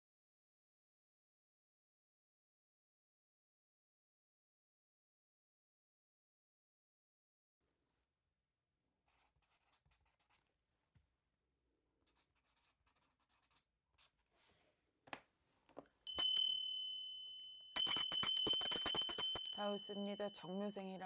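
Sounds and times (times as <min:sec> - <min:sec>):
pen scratching on paper: 0:09.1 - 0:10.5, 0:12.0 - 0:14.2
bell struck and ringing: 0:16.1 - 0:20.5
bells shaken jingling: 0:16.1 - 0:20.8.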